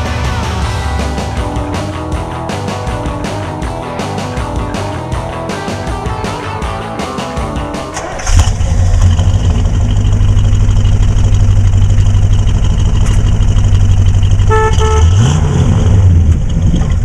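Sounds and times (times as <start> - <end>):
car engine exhaust drone: 6.8 - 17.0
car horn toots: 14.3 - 15.4.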